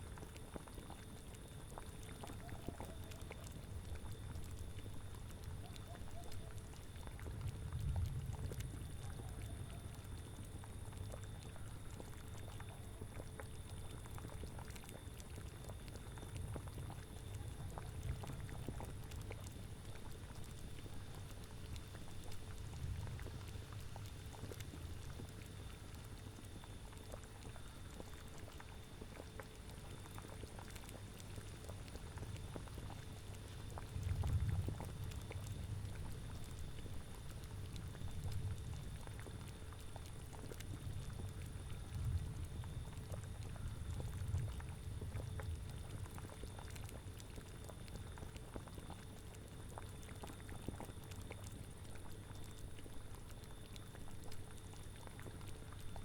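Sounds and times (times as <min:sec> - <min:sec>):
cauldron bubbling: 0:00.0 - 0:56.0
low rumble of wind: 0:03.2 - 0:26.2, 0:30.6 - 0:56.0.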